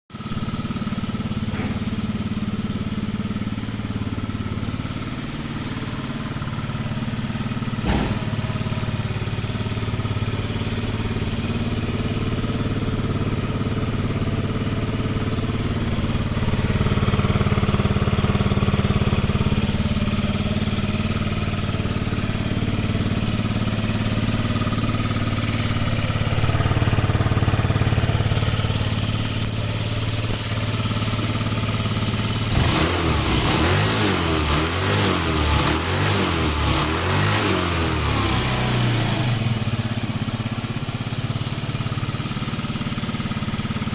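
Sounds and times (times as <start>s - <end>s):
scooter engine idling: 0.1s - 43.9s
sharp knock: 7.8s - 8.6s.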